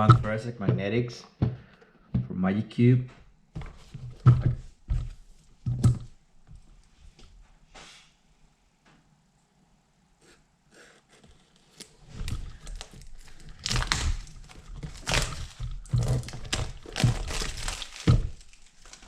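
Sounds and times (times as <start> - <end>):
packaging crinkling and tearing: 11.6 - 19.0.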